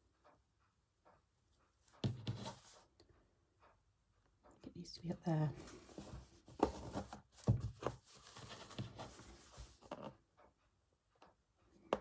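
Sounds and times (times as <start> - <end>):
soft handling bumps: 5.5 - 10.1.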